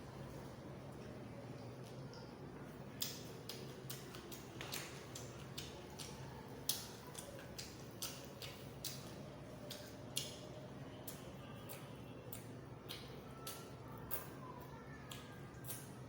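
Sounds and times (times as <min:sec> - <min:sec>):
person chewing with mouth clicks: 0:03.0 - 0:10.4, 0:11.0 - 0:14.3, 0:15.1 - 0:16.0.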